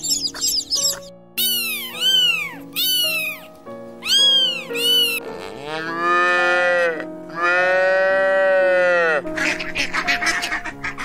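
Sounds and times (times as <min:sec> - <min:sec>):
cat meowing: 0:01.4 - 0:05.2
cattle mooing: 0:05.2 - 0:09.2.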